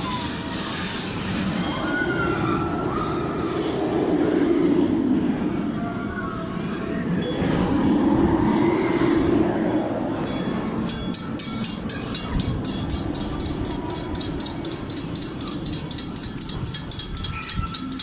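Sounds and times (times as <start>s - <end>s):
train rumbling past: 0.0s - 18.0s
bell ringing rapidly: 10.9s - 18.0s.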